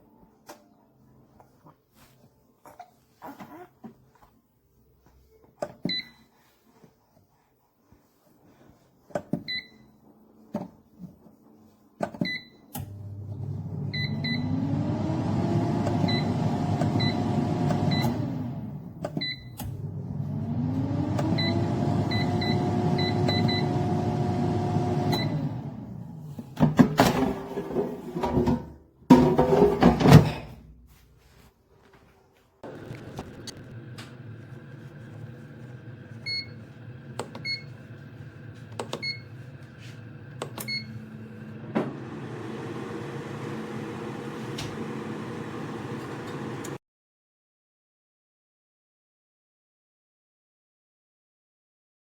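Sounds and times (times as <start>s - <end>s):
fan motor whine: 12.9s - 27.3s, 32.6s - 46.8s.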